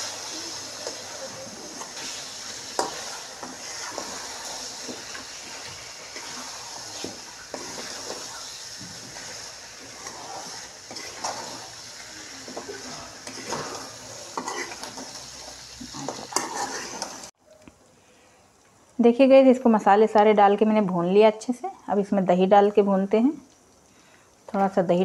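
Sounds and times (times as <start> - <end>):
spatula scraping wok: 0.0 - 17.3
chicken sizzling in oil: 0.0 - 17.4.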